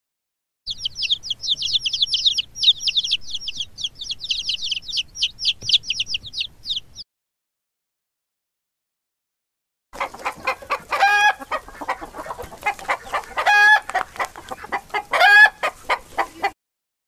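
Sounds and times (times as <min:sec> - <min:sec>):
birds chirping: 0:00.7 - 0:07.0, 0:10.0 - 0:16.5.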